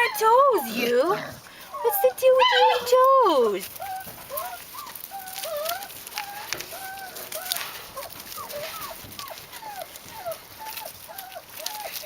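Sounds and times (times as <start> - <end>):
puppy whining: 0.0 - 12.0.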